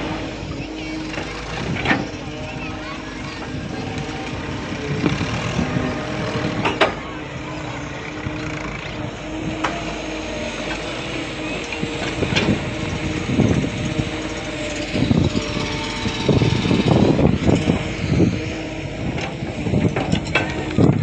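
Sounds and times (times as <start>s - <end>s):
motor running: 0.0s - 21.0s.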